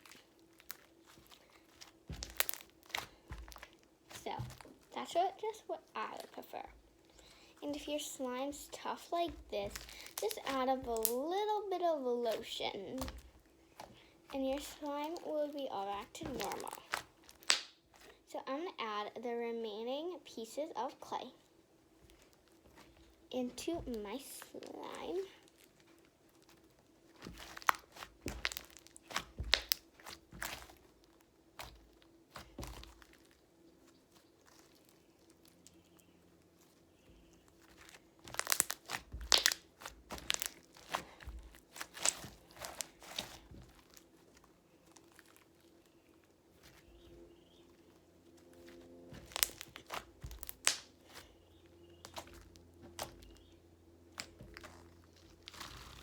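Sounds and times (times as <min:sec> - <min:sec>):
slime crackling and popping: 0:00.0 - 0:11.5, 0:12.2 - 0:18.1, 0:23.8 - 0:35.8, 0:37.4 - 0:46.0, 0:48.6 - 0:51.3, 0:54.1 - 0:56.0.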